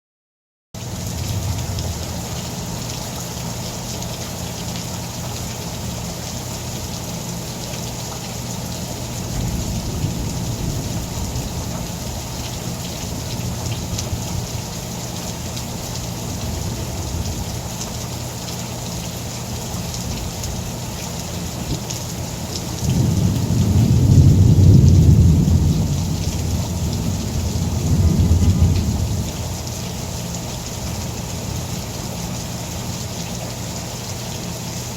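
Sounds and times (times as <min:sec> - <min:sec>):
rain falling: 0:00.8 - 0:34.9
thunder rolling: 0:09.3 - 0:12.3, 0:22.8 - 0:29.6.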